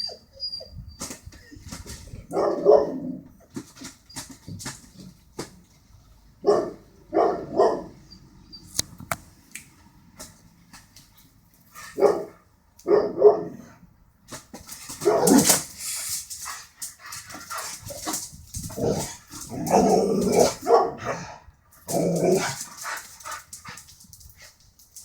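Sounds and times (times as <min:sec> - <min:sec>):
dog barking: 0:02.3 - 0:03.2, 0:06.4 - 0:08.0, 0:11.9 - 0:13.7, 0:15.0 - 0:15.6, 0:18.8 - 0:21.3.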